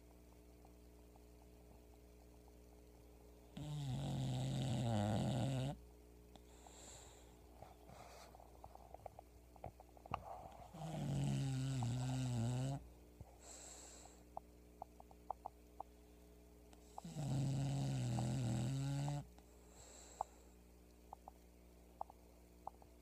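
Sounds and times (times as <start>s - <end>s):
dog snoring: 3.5s - 5.8s, 10.4s - 12.8s, 16.8s - 19.3s
breathy hiss: 3.5s - 9.0s, 10.3s - 14.4s, 15.9s - 20.8s.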